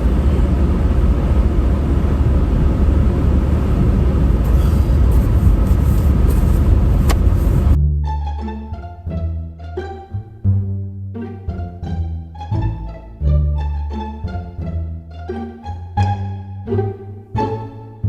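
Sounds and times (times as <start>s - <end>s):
car road and engine rumble: 0.0s - 8.4s
plucked string music: 7.8s - 18.0s.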